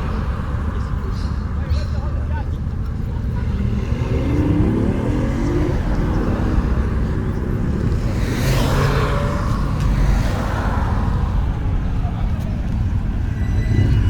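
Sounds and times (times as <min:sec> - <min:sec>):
car engine revving: 0:02.9 - 0:14.0
car passing by: 0:03.4 - 0:14.0.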